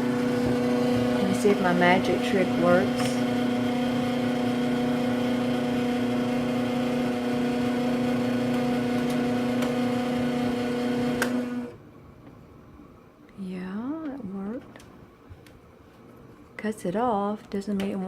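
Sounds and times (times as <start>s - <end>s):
refrigerator hum: 0.0s - 11.8s.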